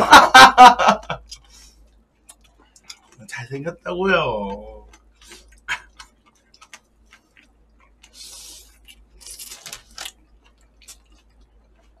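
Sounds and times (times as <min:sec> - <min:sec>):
wet chewing and crunching: 0:01.8 - 0:03.3, 0:04.8 - 0:12.0.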